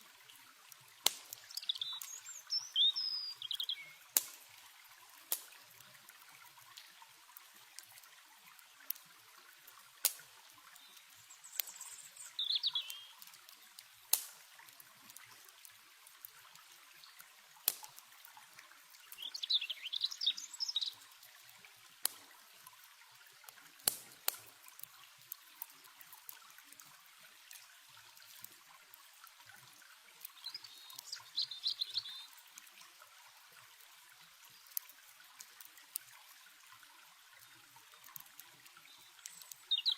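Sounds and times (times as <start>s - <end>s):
campfire crackling: 0.1s - 39.9s
warbling birdsong: 1.4s - 4.2s, 10.7s - 13.8s, 19.0s - 21.1s, 30.3s - 32.4s, 38.8s - 39.9s.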